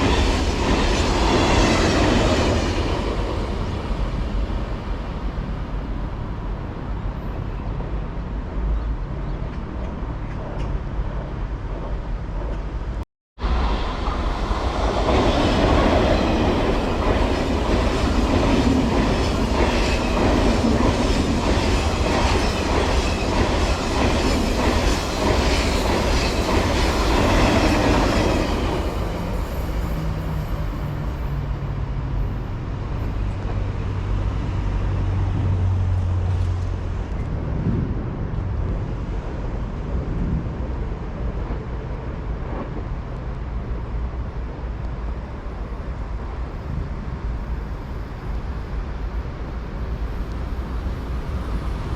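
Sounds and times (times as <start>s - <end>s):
train rumble and hum: 0.0s - 51.9s
train wheels clattering: 15.0s - 30.5s.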